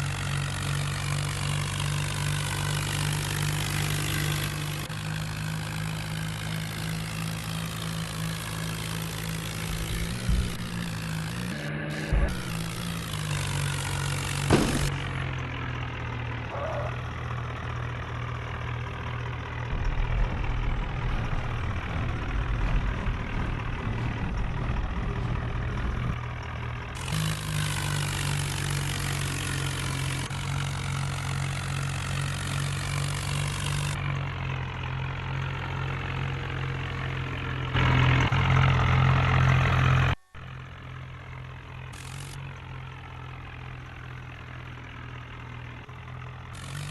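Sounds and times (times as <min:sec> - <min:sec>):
tractor diesel engine idling: 0:00.0 - 0:46.9.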